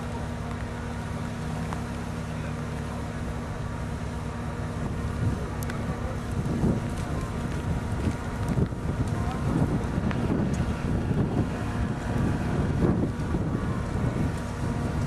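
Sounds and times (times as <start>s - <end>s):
engine running at low revs: 0.0s - 15.0s
wind on microphone: 4.8s - 15.0s.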